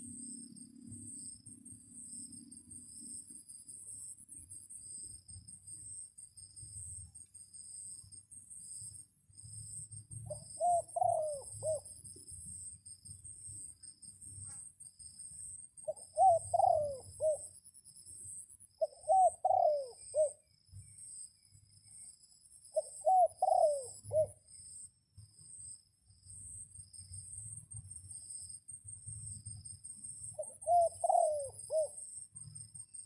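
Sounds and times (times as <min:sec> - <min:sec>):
dove cooing: 0:10.3 - 0:11.9, 0:15.9 - 0:17.5, 0:18.8 - 0:20.4, 0:22.8 - 0:24.4, 0:30.4 - 0:32.0.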